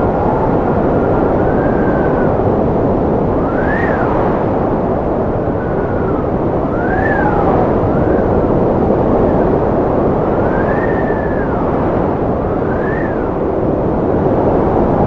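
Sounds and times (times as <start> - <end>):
strong wind rumbling: 0.0 - 15.0
thin gliding whistle: 3.4 - 4.5, 5.6 - 7.6, 12.6 - 13.3.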